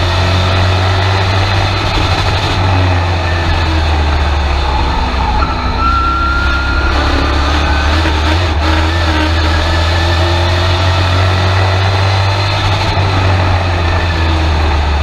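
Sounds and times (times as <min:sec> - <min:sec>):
truck engine droning: 0:00.0 - 0:15.0.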